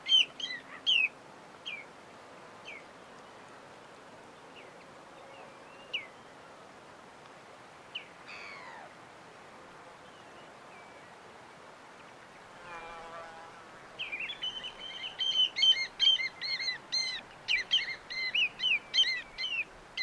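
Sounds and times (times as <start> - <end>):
steady background hiss: 0.0 - 20.0
birds chirping: 14.0 - 20.0.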